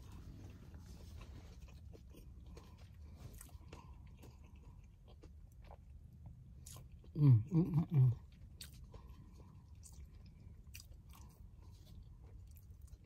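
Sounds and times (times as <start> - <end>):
chewing crunchy taco shell: 0.0 - 13.0
low steady hum: 0.0 - 13.0.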